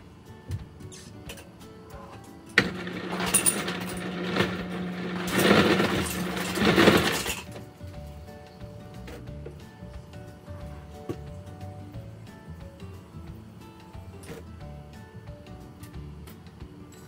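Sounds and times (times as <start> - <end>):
small appliance motor humming: 2.6 - 7.4.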